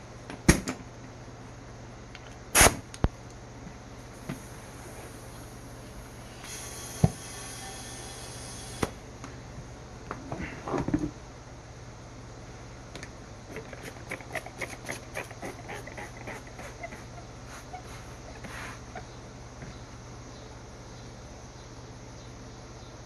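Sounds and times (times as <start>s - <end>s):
steady low hum: 0.0s - 23.0s
hiss: 2.6s - 2.8s, 4.1s - 9.0s, 13.8s - 19.0s.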